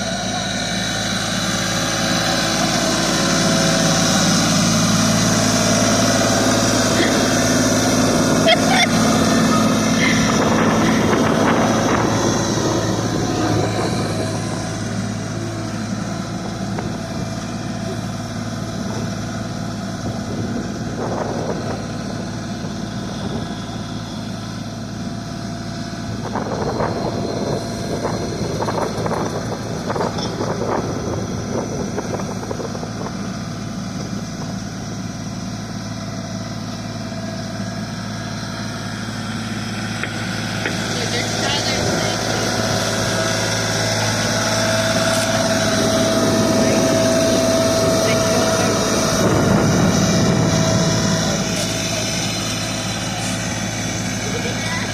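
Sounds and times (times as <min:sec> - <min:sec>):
short noisy engine bursts: 0:00.0 - 0:19.0, 0:39.0 - 0:54.9
tractor engine idling: 0:00.0 - 0:54.9.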